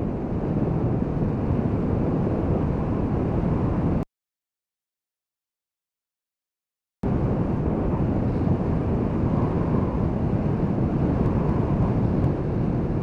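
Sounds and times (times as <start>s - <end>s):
wind buffeting microphone: 0.0s - 4.0s, 7.0s - 13.0s.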